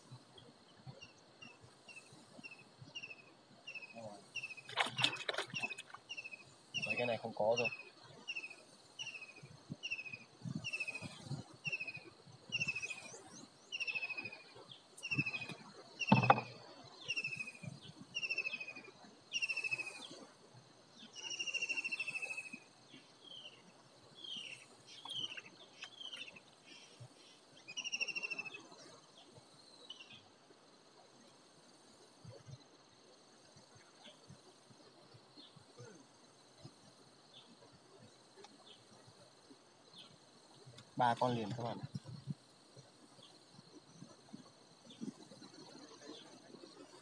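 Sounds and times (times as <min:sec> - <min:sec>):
bird calling: 0:01.4 - 0:17.6, 0:18.2 - 0:20.2, 0:21.1 - 0:22.6, 0:24.2 - 0:28.6
handling thumps and knocks: 0:16.1 - 0:16.5.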